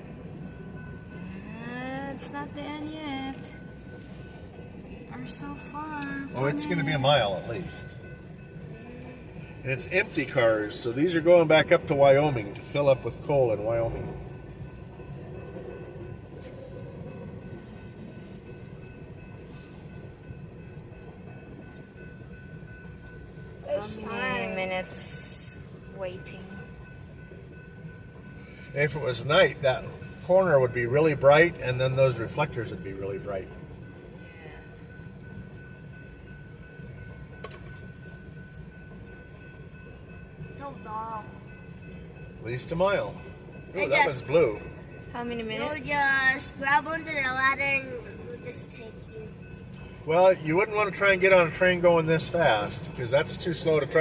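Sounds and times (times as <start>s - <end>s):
train wheels rumbling on rails: 0.0s - 54.0s
thin high tone: 5.6s - 8.0s.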